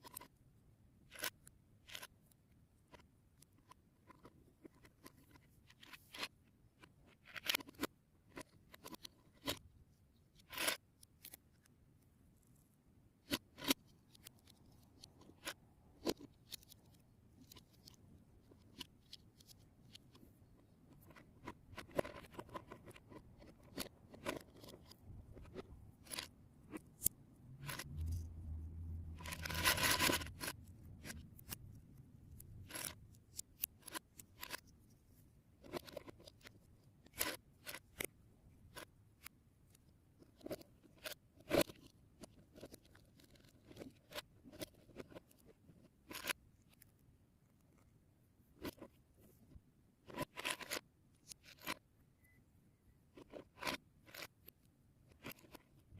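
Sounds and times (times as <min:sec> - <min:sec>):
plastic pieces rustling and scraping: 0:29.2 - 0:31.6.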